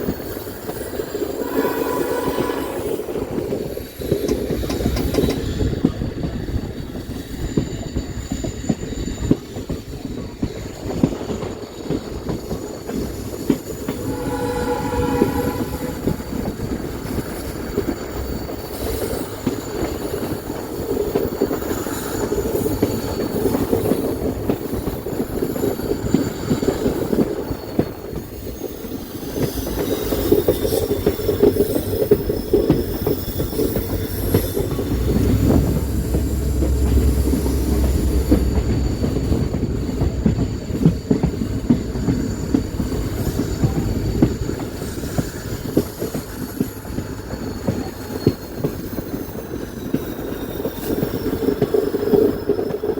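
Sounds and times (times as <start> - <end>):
train rumble and wheel clatter: 0.0 - 52.9
high-pitched wheel squeal: 0.8 - 5.4, 13.6 - 20.9
train horn blast: 1.2 - 3.7, 13.8 - 17.2, 34.3 - 40.2.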